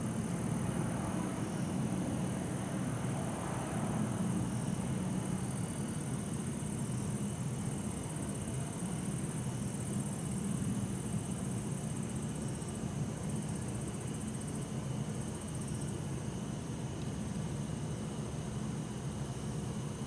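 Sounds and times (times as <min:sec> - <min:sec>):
distant traffic rumble: 0:00.0 - 0:12.4
crickets trilling: 0:00.0 - 0:20.0.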